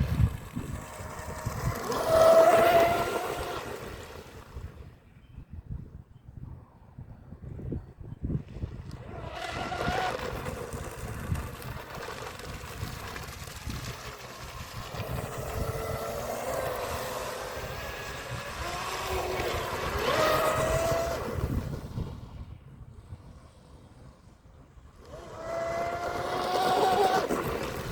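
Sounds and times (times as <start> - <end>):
rc boat motor whine: 0.0 - 5.1, 8.6 - 27.9
wind rumbling on microphone: 0.0 - 27.9.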